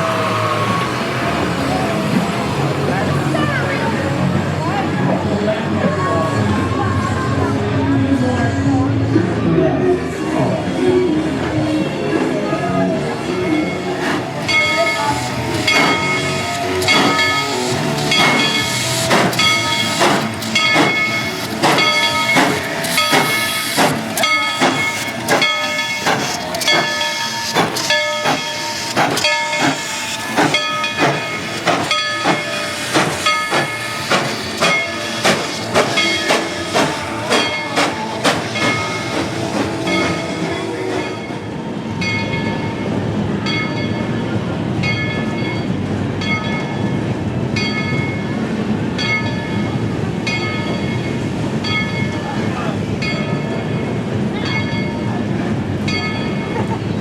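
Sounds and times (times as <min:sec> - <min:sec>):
train rolling rumble: 0:00.0 - 0:57.0
locomotive bell ringing: 0:12.9 - 0:57.0
steam hissing: 0:13.1 - 0:41.9.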